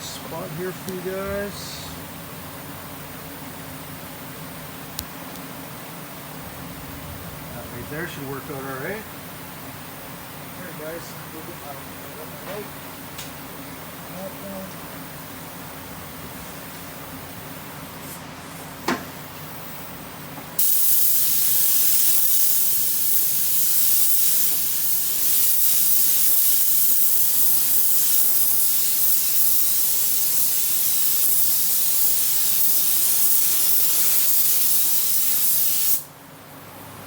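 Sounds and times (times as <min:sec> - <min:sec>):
paint spray gun hissing: 0:20.6 - 0:36.1.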